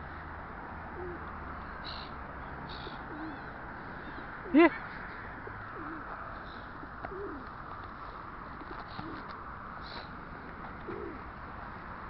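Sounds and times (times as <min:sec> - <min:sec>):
low bird calls: 0:00.9 - 0:07.5, 0:08.8 - 0:10.2.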